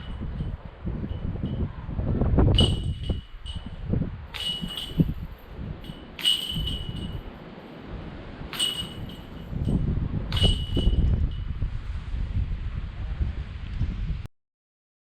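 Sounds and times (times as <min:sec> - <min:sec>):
wind buffeting microphone: 0:00.0 - 0:14.3
chains jingling: 0:02.6 - 0:07.4, 0:08.5 - 0:09.8, 0:10.4 - 0:11.0.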